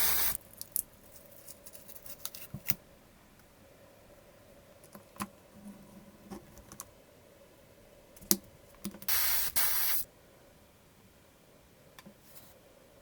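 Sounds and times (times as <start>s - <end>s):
short hissing sprays: 0.0s - 0.4s, 9.1s - 10.1s.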